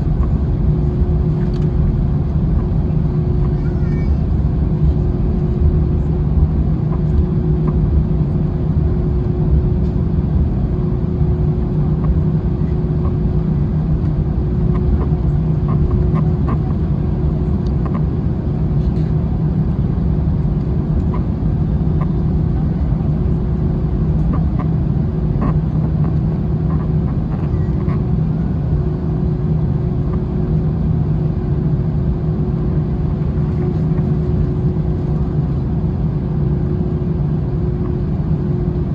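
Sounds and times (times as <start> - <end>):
jet cabin engine rumble: 0.0 - 38.9.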